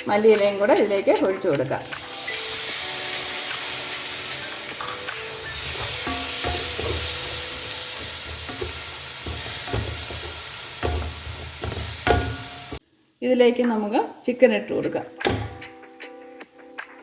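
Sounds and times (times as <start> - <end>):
masala sizzling in a pan: 0.0 - 14.5
spoon scraping a pan: 4.8 - 12.8.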